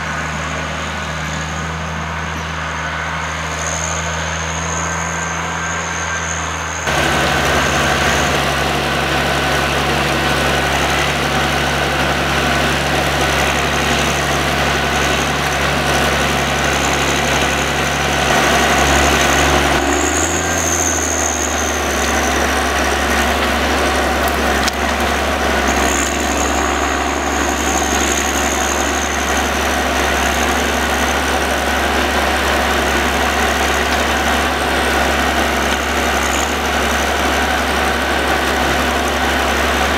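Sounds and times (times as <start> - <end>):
diesel engine running: 0.0 - 39.9
thin high whine: 16.6 - 31.3.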